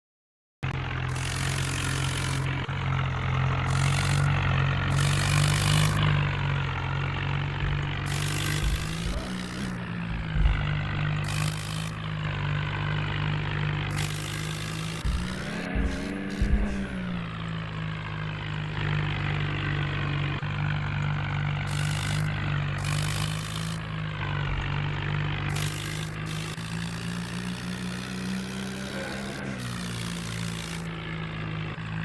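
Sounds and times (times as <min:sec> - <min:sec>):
tractor diesel engine running: 0:00.6 - 0:32.0
hiss: 0:21.7 - 0:23.8.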